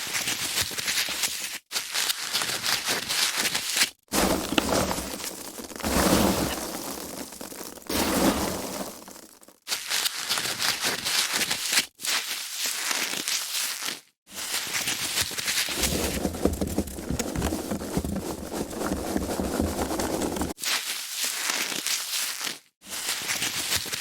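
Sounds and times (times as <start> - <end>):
foam packaging crackling: 4.1 - 11.8, 15.5 - 20.6.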